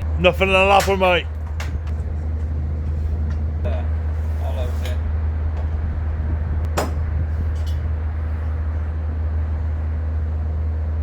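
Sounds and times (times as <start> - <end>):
steady low engine hum: 0.0 - 11.0.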